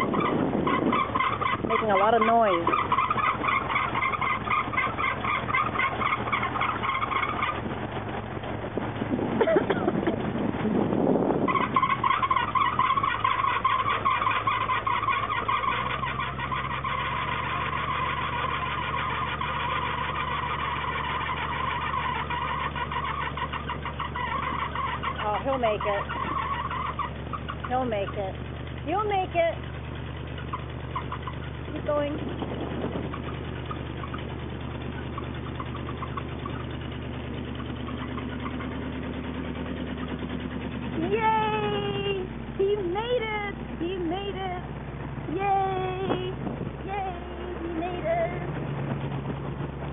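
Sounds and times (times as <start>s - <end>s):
light rapid ticking: 0.0s - 10.7s, 11.5s - 49.9s
rattling noise: 0.0s - 49.9s
truck engine running: 0.0s - 49.9s.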